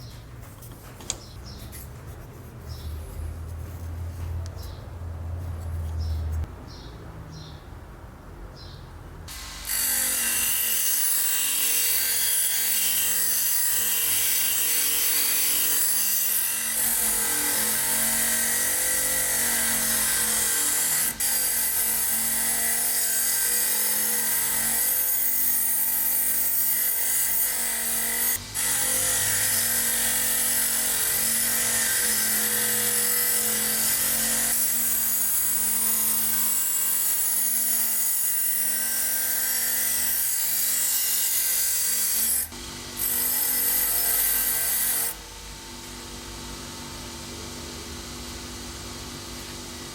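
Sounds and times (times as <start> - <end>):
power tool grinding steel: 9.3 - 45.2.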